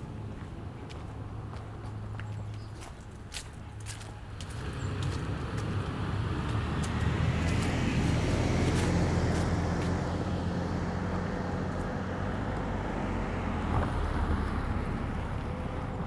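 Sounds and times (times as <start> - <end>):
car driving by: 4.5 - 16.0.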